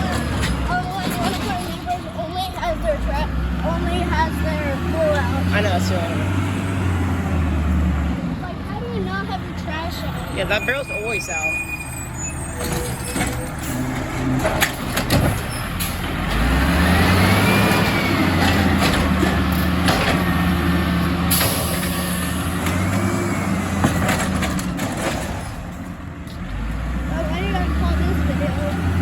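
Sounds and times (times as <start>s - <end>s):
knocks and clatter: 0.0s - 2.6s, 12.6s - 16.5s, 17.6s - 20.4s, 23.7s - 26.4s
truck diesel engine revving: 0.0s - 29.0s.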